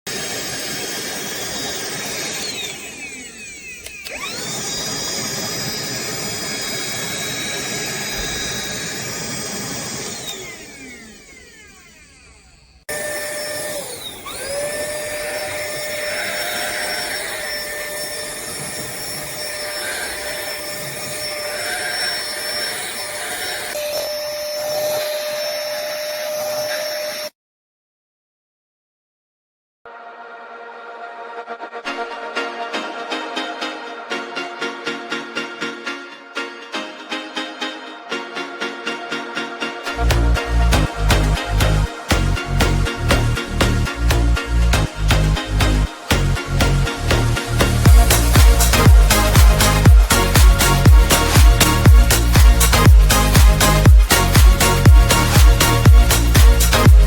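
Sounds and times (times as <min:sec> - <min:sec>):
handheld vacuum motor whining: 0:00.1 - 0:27.3, 0:45.0 - 0:57.0.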